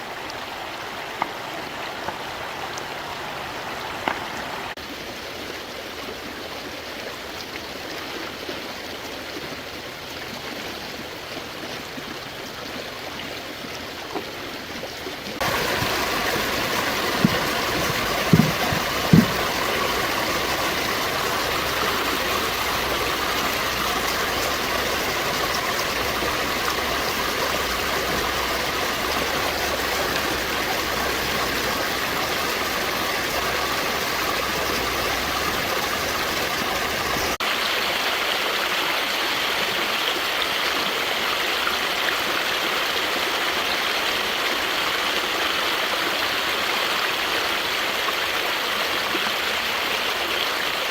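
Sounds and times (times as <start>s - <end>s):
stream water rushing: 0.0s - 50.9s
dull low thumps: 15.4s - 25.1s.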